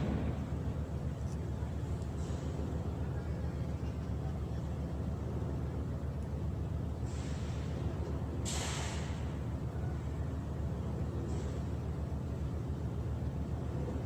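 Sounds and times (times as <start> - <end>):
short bursts of hiss: 8.4 - 9.2.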